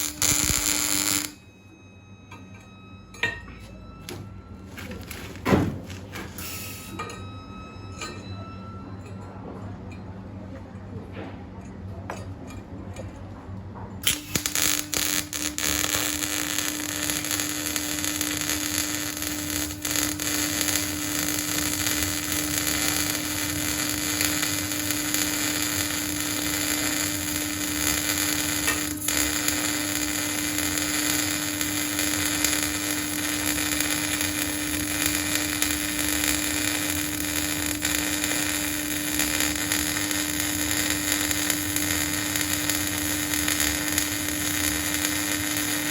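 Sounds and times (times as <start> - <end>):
welding arc crackling hiss: 0.0 - 1.4, 4.9 - 7.0, 14.0 - 45.9.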